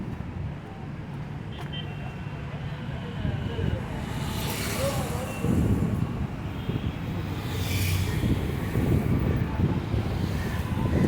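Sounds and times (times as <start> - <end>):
road traffic rumble: 2.4 - 11.0.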